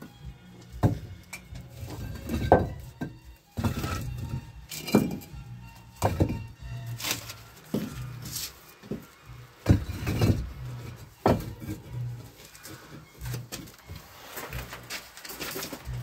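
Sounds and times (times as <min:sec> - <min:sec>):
stones clacking together: 0:00.8 - 0:05.3.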